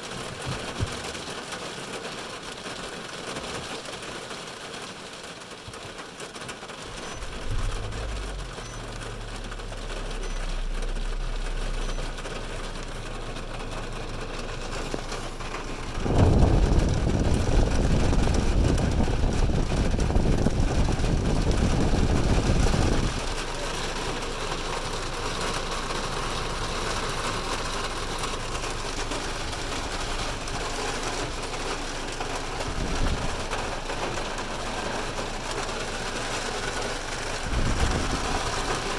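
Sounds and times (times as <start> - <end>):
heavy rain on car roof: 0.0 - 38.9
loud low rumble: 6.9 - 24.5, 28.2 - 36.2, 37.4 - 38.9.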